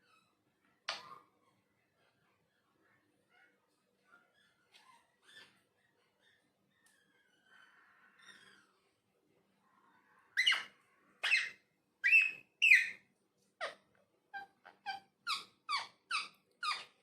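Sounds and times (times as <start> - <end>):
parakeet squeaky calls: 10.4 - 13.0, 14.4 - 17.0.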